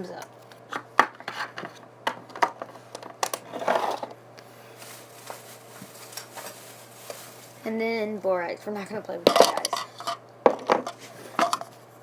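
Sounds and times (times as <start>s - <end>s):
short rustling: 4.7s - 7.7s.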